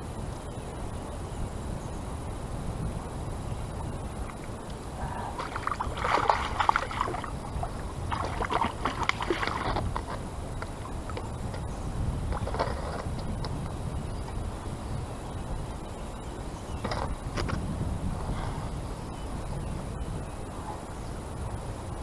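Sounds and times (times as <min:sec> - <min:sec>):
wind: 0:00.0 - 0:22.0
river water flowing: 0:04.2 - 0:11.6.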